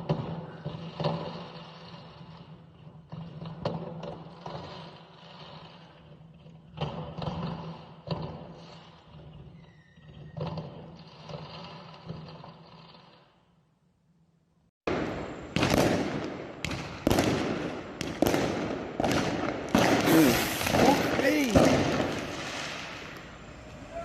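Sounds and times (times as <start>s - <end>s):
fireworks bangs: 0.0s - 5.9s, 14.9s - 24.0s.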